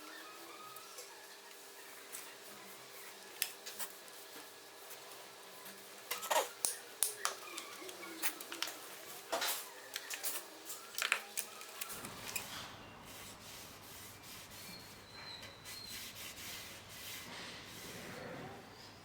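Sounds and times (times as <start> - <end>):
steady rubbing: 12.0 - 18.6.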